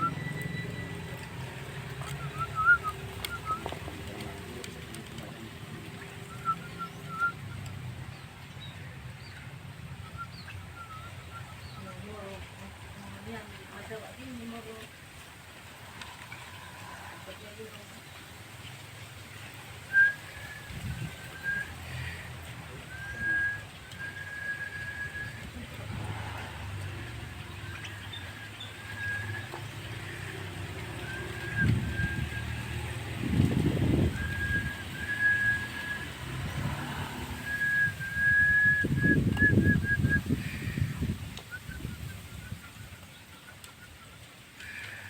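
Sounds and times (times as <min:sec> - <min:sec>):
myna whistling: 0:00.0 - 0:04.8, 0:06.1 - 0:08.2, 0:10.0 - 0:12.3, 0:19.9 - 0:42.8
low rumbling background noise: 0:00.0 - 0:45.0.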